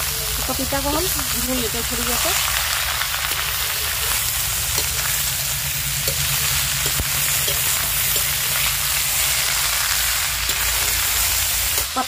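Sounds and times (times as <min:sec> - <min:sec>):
vegetables sizzling in oil: 0:00.0 - 0:12.0
metal spoon scraping a pan: 0:02.4 - 0:12.0.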